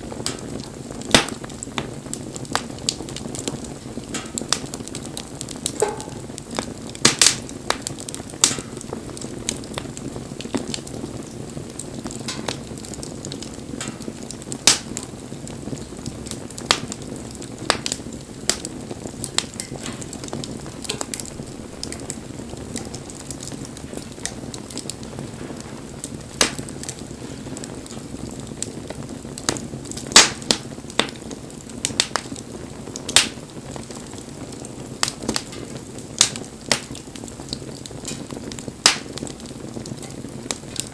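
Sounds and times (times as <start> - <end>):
bonfire hissing: 0.0 - 40.9
fire crackles and pops: 0.0 - 40.9.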